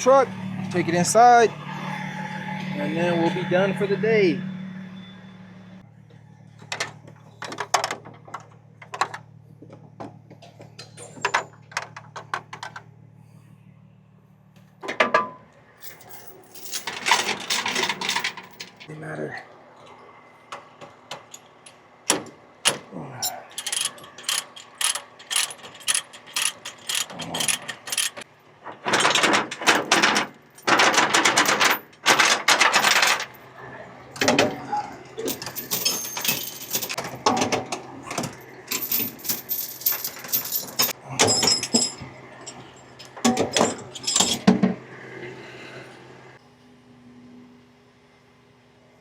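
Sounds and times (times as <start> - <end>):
metal rigging clanking and rattling: 15.8 - 18.9, 21.2 - 33.4, 34.2 - 44.8.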